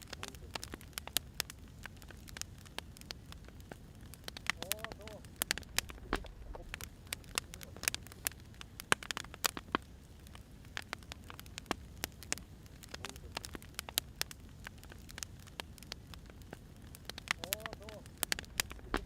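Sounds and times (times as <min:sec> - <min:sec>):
fire rumbling: 0:00.0 - 0:19.0
firewood crackling and popping: 0:00.0 - 0:19.0.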